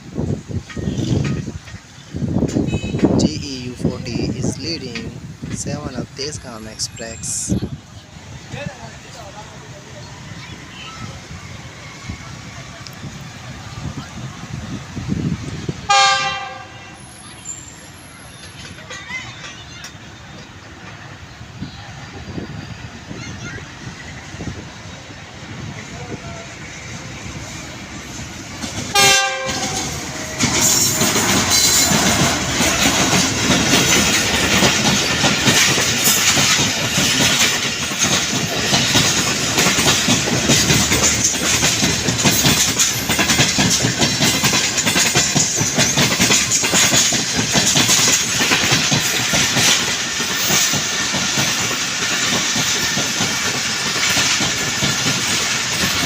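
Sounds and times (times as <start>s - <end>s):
clickety-clack over rail joints: 0.0s - 6.7s, 7.5s - 23.8s, 25.6s - 56.0s
train wheels rushing on rail: 0.0s - 56.0s
train horn blast: 2.6s - 3.1s, 15.9s - 17.0s, 28.9s - 30.0s.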